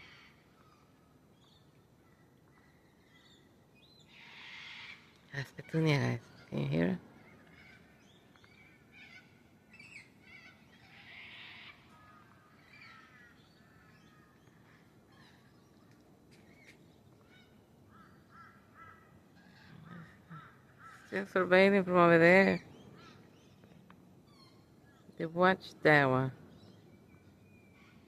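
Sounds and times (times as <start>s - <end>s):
cockatoo squawks and screeches: 4.2s - 5.0s, 10.3s - 11.8s, 19.4s - 21.1s.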